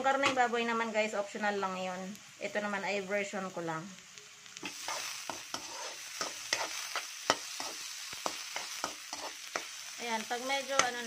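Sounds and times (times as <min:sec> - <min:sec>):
meat sizzling in hot oil: 0:00.0 - 0:11.0
spatula clicking and scraping pan: 0:04.6 - 0:09.8, 0:10.6 - 0:11.0.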